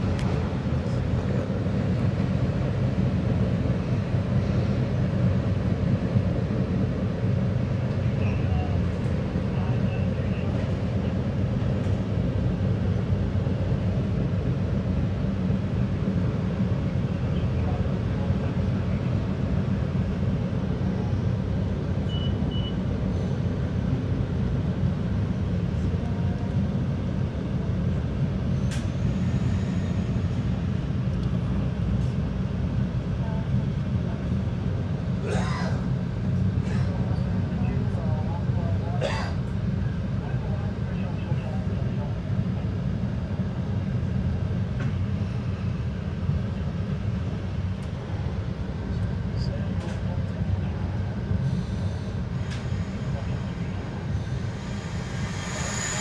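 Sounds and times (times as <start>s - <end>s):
train rumbling along track: 0.0s - 56.0s
short high beeps: 22.1s - 22.8s
faint click: 28.7s - 28.9s.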